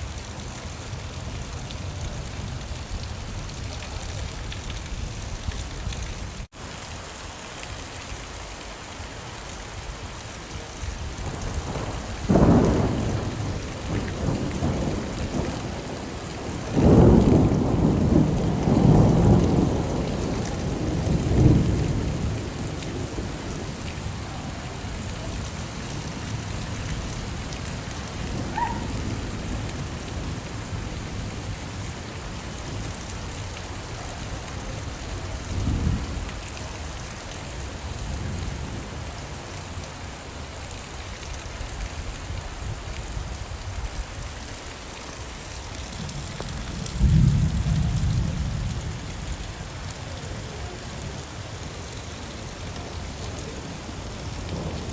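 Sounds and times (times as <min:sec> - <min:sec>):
steady rain falling: 0:00.0 - 0:54.9
thunder rumbling: 0:11.0 - 0:37.1, 0:45.8 - 0:51.2.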